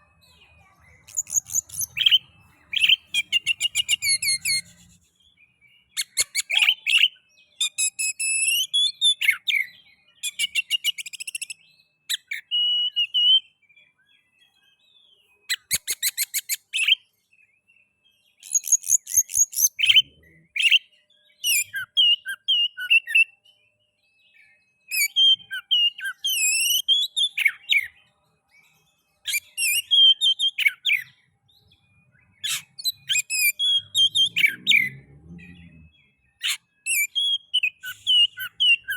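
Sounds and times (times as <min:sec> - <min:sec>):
bird singing varied whistles and trills: 0:00.0 - 0:38.9.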